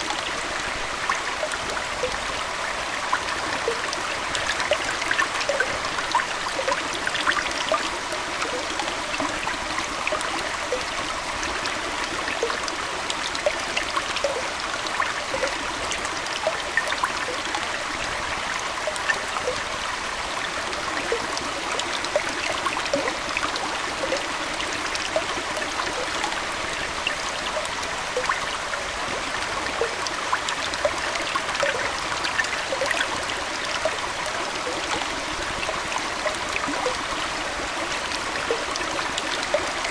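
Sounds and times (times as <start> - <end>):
aquarium water trickling: 0.0 - 39.9
small bubbling plips: 1.0 - 18.2, 18.8 - 39.9.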